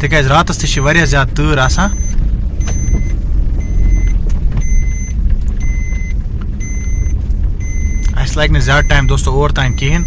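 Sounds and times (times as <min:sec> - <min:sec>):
engine and road rumble: 0:00.0 - 0:10.0
vehicle warning beeper: 0:00.6 - 0:10.0.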